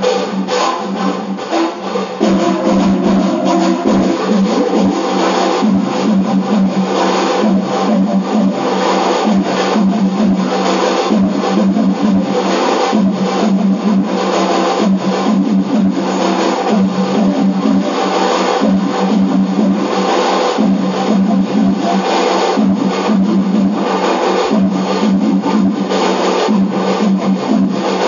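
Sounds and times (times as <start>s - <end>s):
train running noise: 0.0s - 13.1s.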